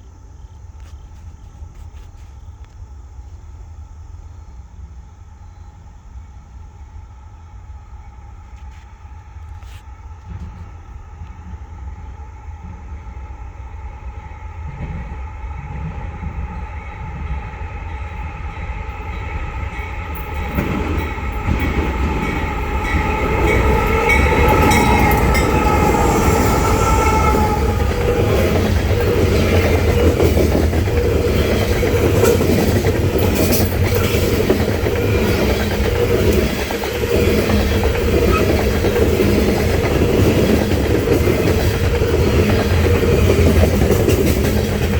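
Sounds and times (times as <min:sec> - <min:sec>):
locomotive engine whine: 0:05.2 - 0:44.9
train cars rumbling past: 0:07.9 - 0:44.9
wheels clicking over rail joints: 0:19.7 - 0:44.9.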